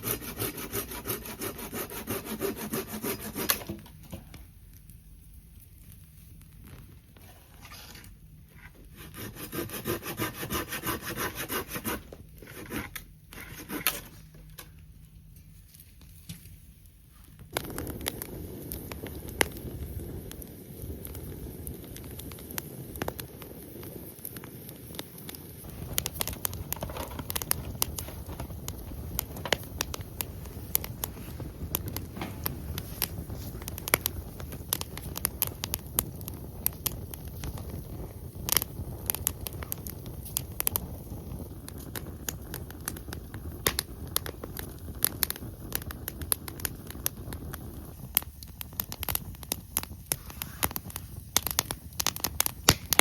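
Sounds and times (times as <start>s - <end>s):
hand saw cutting wood: 0.0s - 3.8s, 9.0s - 14.0s
campfire crackling and popping: 0.0s - 7.2s, 16.0s - 53.0s.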